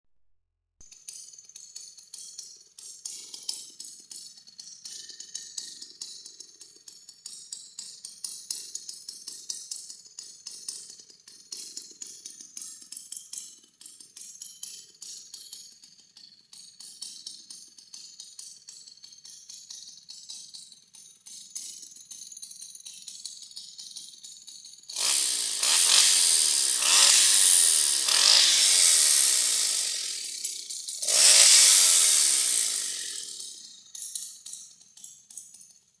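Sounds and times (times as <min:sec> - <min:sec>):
chainsaw idling: 0:24.9 - 0:33.8.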